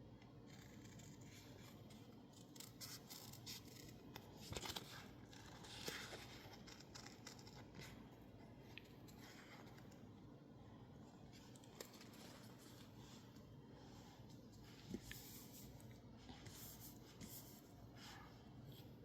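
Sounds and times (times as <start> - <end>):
scissors cutting paper: 0.4 - 8.0
paper rustling: 11.2 - 18.2.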